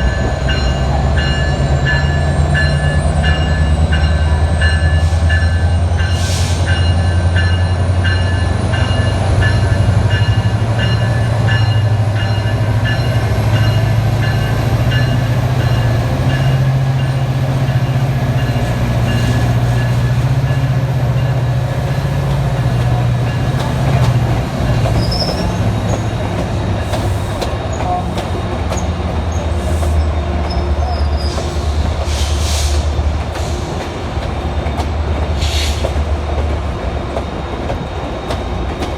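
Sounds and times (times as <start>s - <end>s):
train motor hum and rail noise: 0.0s - 38.9s
high wheel squeals: 24.7s - 33.8s.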